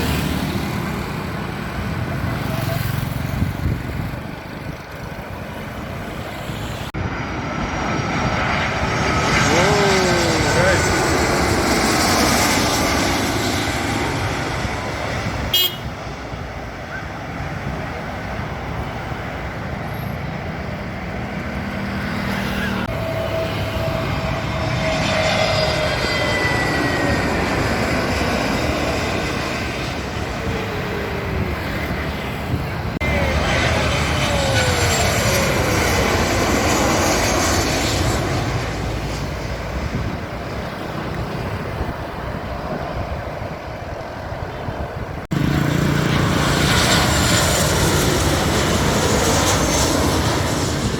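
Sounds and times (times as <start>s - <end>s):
aircraft noise: 0.0s - 50.9s
road traffic noise: 0.0s - 50.9s
steady horn-like tone: 15.5s - 16.0s.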